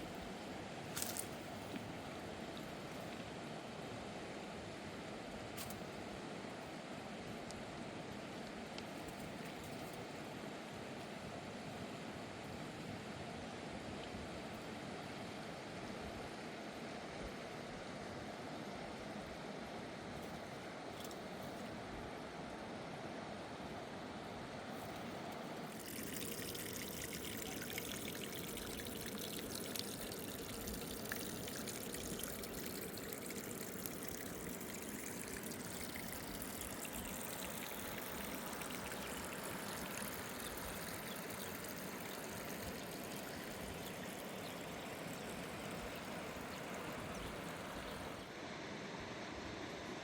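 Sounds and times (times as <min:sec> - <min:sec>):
river water rushing: 0:25.6 - 0:48.2.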